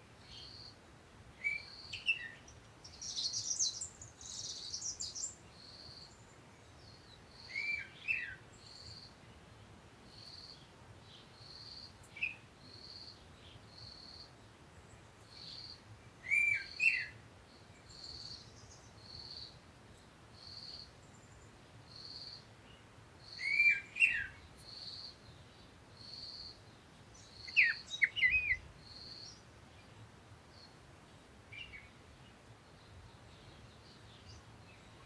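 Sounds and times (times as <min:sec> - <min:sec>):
birds chirping: 0:01.4 - 0:05.4, 0:23.4 - 0:29.9.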